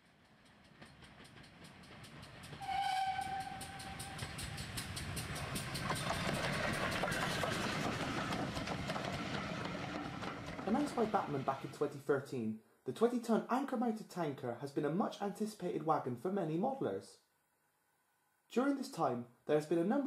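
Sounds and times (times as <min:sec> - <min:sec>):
train wheels clattering over rail joints: 0:00.0 - 0:11.7
train whistle: 0:02.6 - 0:04.9.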